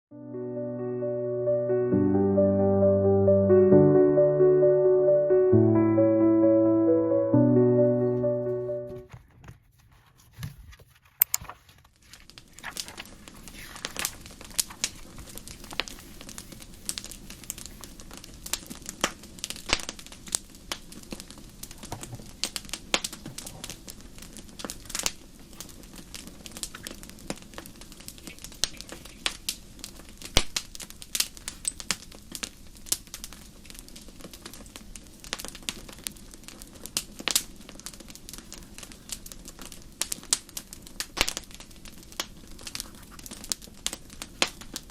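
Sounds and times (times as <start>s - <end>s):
wood fire crackling: 11.0s - 44.9s.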